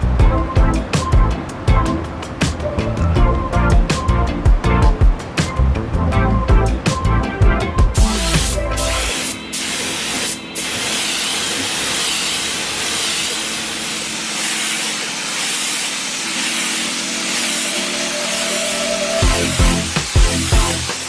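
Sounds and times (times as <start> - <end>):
compressed-air spray hissing: 8.0 - 21.0.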